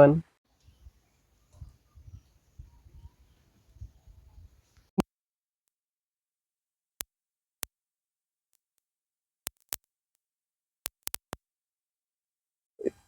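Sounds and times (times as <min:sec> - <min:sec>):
sharp isolated clicks: 0:09.5 - 0:09.9, 0:10.8 - 0:11.4.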